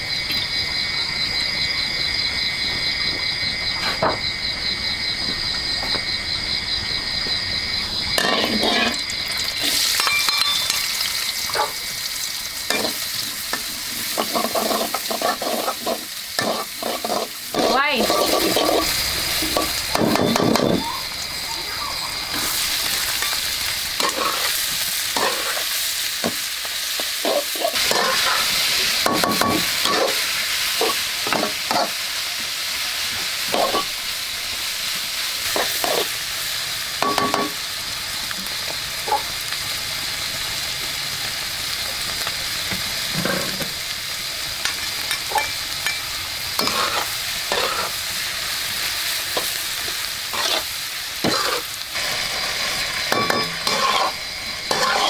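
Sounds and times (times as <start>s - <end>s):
food sizzling in a pan: 7.9s - 55.0s
utensil scraping a pan: 14.0s - 20.8s, 27.2s - 30.2s, 46.6s - 48.0s, 50.3s - 51.7s, 53.2s - 55.0s.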